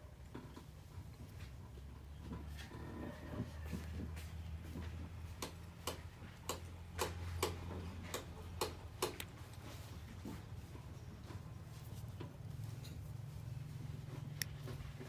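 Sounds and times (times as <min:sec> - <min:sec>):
sharp irregular clicks: 0:05.4 - 0:09.5.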